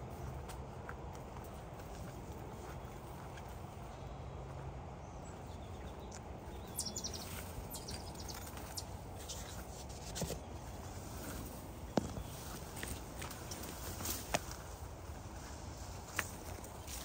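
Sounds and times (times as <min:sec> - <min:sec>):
birds chirping: 0:01.7 - 0:14.5.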